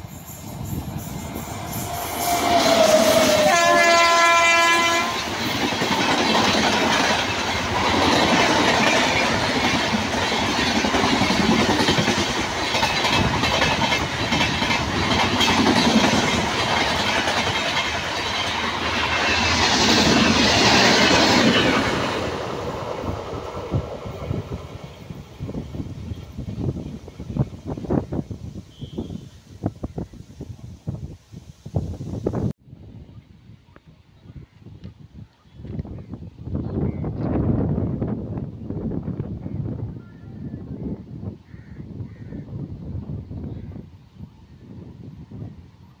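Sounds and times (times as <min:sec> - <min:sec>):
train horn: 0:01.7 - 0:05.3, 0:28.7 - 0:29.4
wheels clacking over rail joints: 0:05.1 - 0:24.7.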